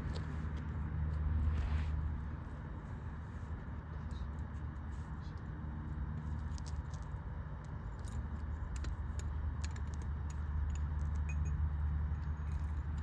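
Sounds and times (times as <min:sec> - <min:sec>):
steady low hum: 0:00.0 - 0:06.6
light metallic clicks and clinks: 0:06.2 - 0:13.0.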